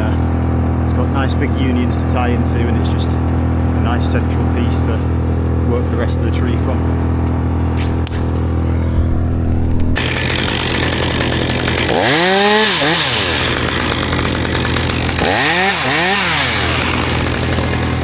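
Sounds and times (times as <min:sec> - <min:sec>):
chainsaw running: 0:06.8 - 0:18.0.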